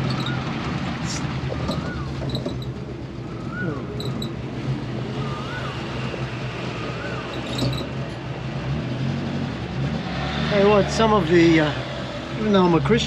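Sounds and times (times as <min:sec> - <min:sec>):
vehicle engine running: 0:00.0 - 0:13.0
rising and falling whistle: 0:03.3 - 0:04.3, 0:05.2 - 0:07.8.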